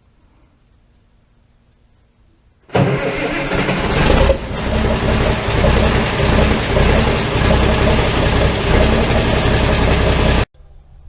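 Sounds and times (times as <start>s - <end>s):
tractor engine running: 2.7s - 10.5s.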